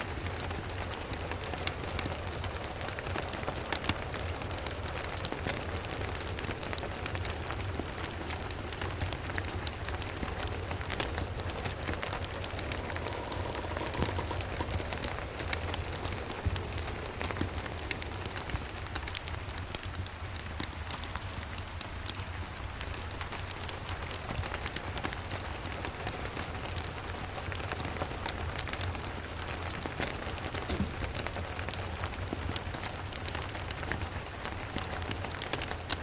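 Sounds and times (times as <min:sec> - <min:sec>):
steady rain: 0:00.0 - 0:36.0
wood fire crackling: 0:00.0 - 0:36.0.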